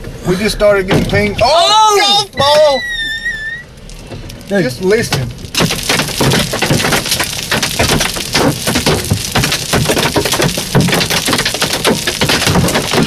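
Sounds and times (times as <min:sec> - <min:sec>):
hailstones pounding a truck: 0:00.4 - 0:02.8, 0:03.7 - 0:13.0.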